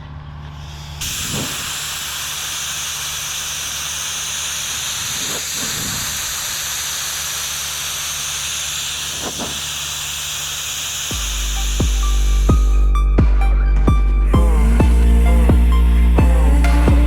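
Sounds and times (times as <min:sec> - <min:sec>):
low hum: 0:00.0 - 0:17.0
spray gun hissing: 0:00.6 - 0:12.9.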